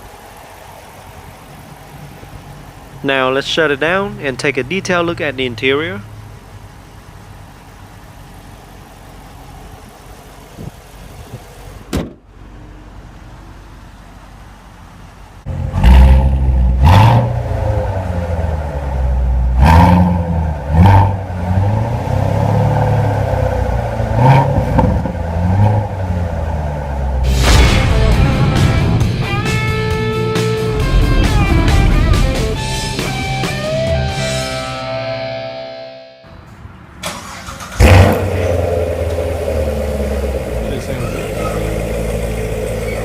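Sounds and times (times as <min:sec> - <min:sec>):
car engine running: 0:00.0 - 0:35.5, 0:37.0 - 0:43.0
engine revving in blips: 0:15.4 - 0:35.7, 0:37.0 - 0:43.0.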